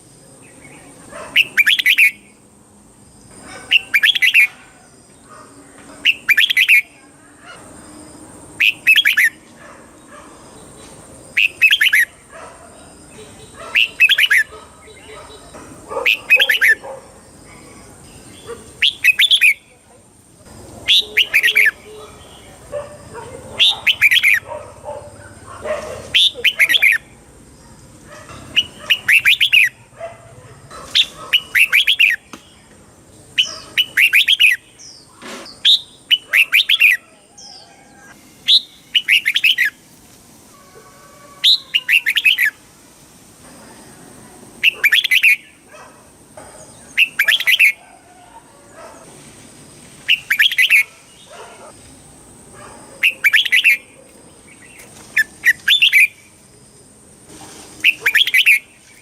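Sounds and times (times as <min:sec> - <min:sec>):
bulbul singing: 0:00.4 - 0:02.4, 0:03.3 - 0:04.6, 0:05.9 - 0:07.0, 0:08.6 - 0:09.5, 0:10.6 - 0:12.3, 0:12.9 - 0:19.8, 0:20.4 - 0:24.5, 0:26.2 - 0:27.2, 0:28.3 - 0:29.9, 0:38.4 - 0:39.8, 0:44.6 - 0:45.7, 0:46.8 - 0:47.8, 0:50.0 - 0:51.5, 0:53.0 - 0:56.4.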